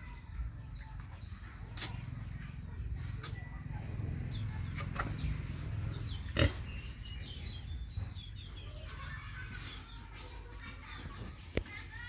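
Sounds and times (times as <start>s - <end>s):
pig grunting: 6.1s - 6.9s.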